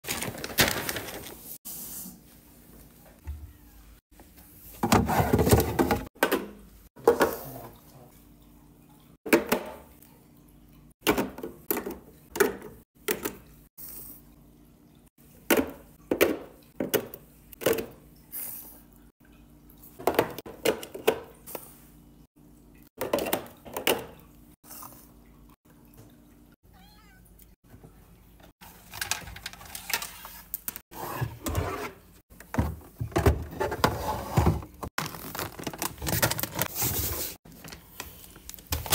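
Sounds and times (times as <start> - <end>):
packaging clattering: 0.0 - 1.5, 34.4 - 38.9
packaging rustling: 0.0 - 1.6, 35.0 - 38.9.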